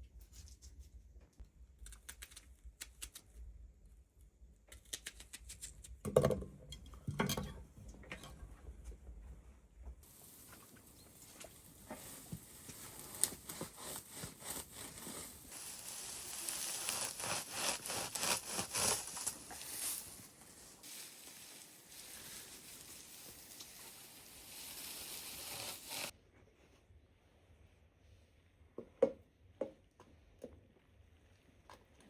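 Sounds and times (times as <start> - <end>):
rough scraping and rubbing: 10.1 - 26.1.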